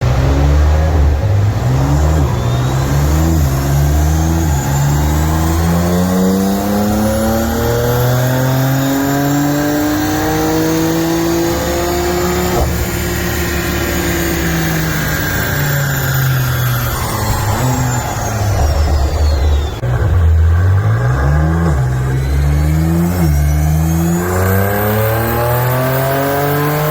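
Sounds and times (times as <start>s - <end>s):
car engine on dyno run: 0.0s - 26.9s.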